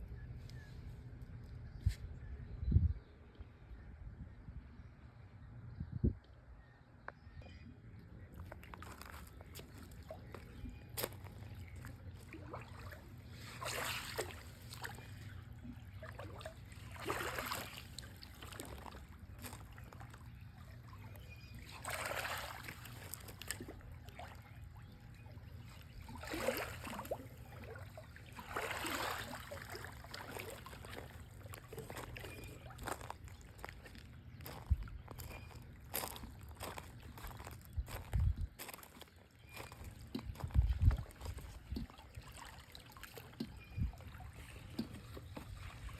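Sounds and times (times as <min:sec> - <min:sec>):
steady low hum: 0:00.0 - 0:45.9
pool water splashing: 0:08.6 - 0:25.0, 0:25.6 - 0:34.0, 0:41.8 - 0:45.9.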